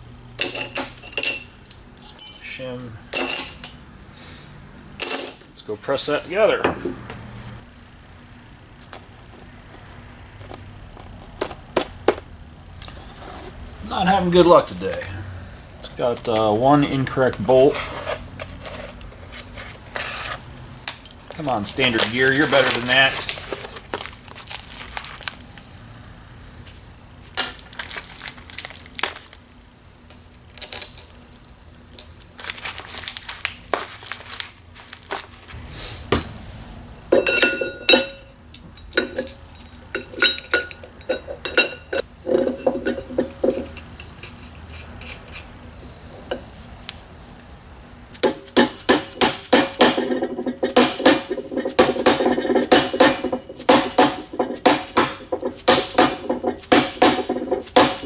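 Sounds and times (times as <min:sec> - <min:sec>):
metal tools clinking: 0:00.2 - 0:03.7, 0:05.0 - 0:05.6, 0:37.1 - 0:45.6.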